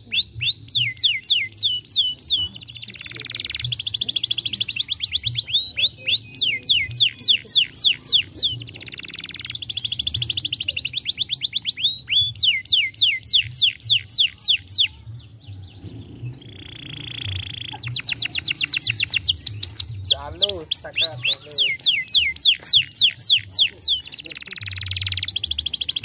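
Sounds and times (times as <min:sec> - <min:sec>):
canary singing: 0:00.0 - 0:26.0.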